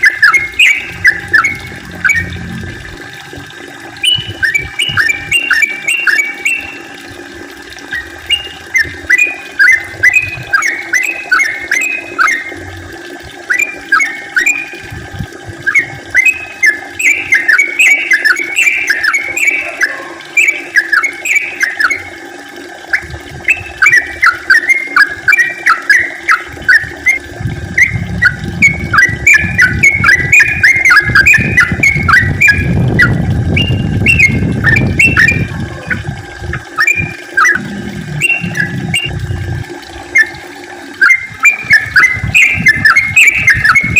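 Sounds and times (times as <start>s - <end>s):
bird chirping song: 0.0s - 2.5s, 4.0s - 6.8s, 7.9s - 12.4s, 15.7s - 22.0s, 27.8s - 36.0s, 38.2s - 39.3s, 41.0s - 43.9s.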